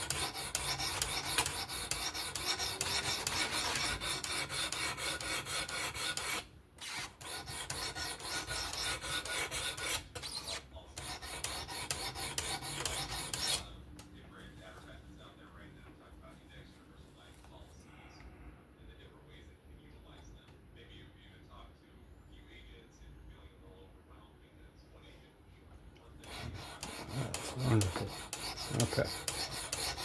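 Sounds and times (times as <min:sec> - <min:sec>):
knife rasping on sharpening stone: 0:00.0 - 0:13.6, 0:26.2 - 0:30.0.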